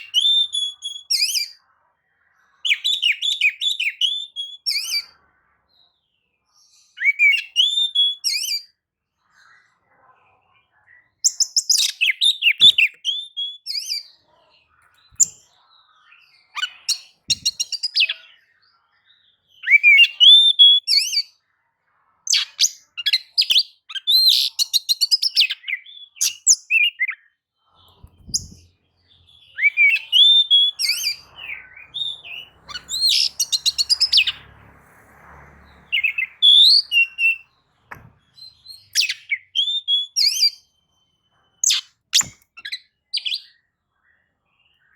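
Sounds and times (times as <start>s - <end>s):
bird singing whistles and trills: 0.0s - 1.6s, 2.6s - 5.1s, 6.9s - 8.7s, 11.2s - 14.1s, 15.1s - 18.5s, 19.5s - 21.4s, 22.3s - 34.4s, 35.9s - 43.6s.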